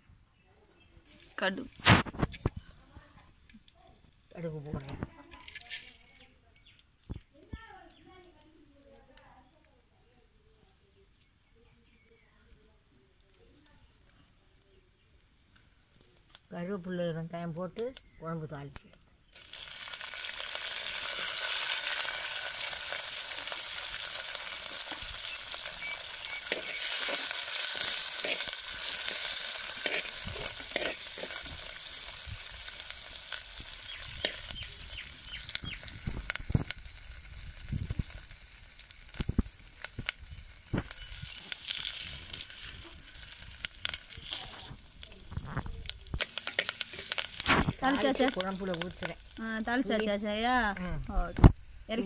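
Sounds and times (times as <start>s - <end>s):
leaves and onion sizzling in oil: 0.8s - 10.2s, 12.8s - 52.0s
metal spoon scraping a pot: 26.5s - 31.5s.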